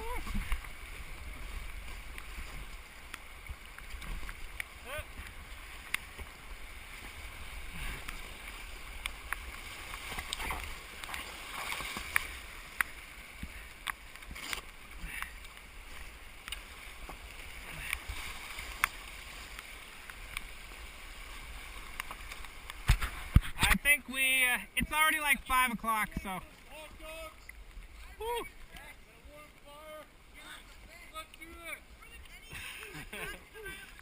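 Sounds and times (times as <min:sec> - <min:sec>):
paddles splashing: 0:00.0 - 0:34.0
rushing creek water: 0:00.0 - 0:34.0.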